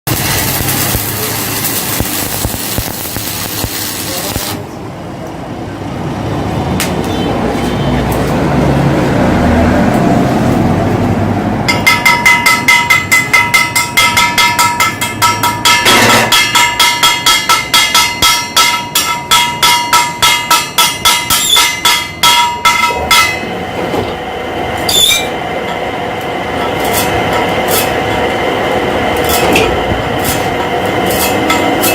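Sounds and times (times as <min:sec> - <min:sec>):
hammer striking ringing metal: 0:11.7 - 0:23.7.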